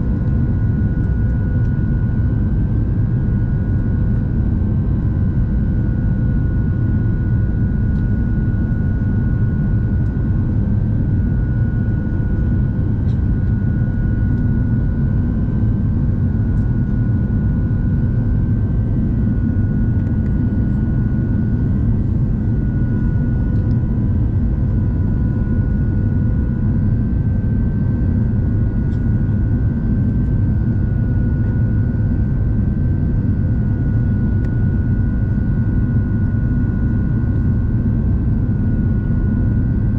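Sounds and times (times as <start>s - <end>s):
airplane cabin engine rumble: 0.0s - 39.9s
steady high whine: 0.0s - 39.9s.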